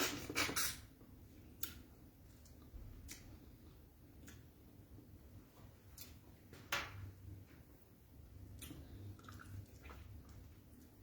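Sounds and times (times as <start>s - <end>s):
soft chewing clicks and smacks: 1.5s - 4.7s, 8.4s - 11.0s.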